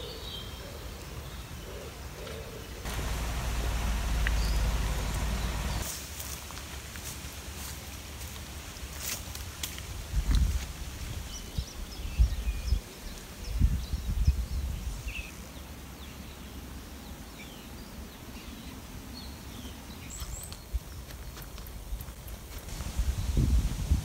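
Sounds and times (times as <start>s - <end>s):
birds chirping and calling: 0.0s - 5.8s.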